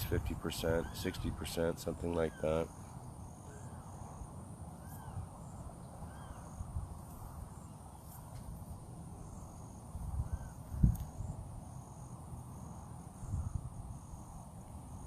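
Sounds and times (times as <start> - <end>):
bird calling: 0.0 - 8.3
insect hum: 0.0 - 15.0.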